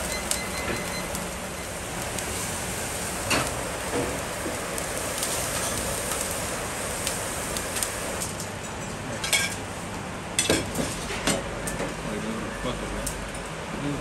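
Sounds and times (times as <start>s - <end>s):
food sizzling in a pan: 0.0s - 8.4s.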